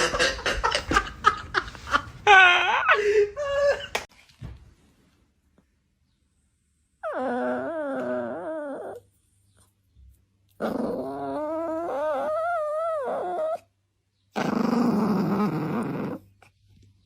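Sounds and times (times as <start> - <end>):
animal growl: 10.6 - 13.6, 14.4 - 16.3.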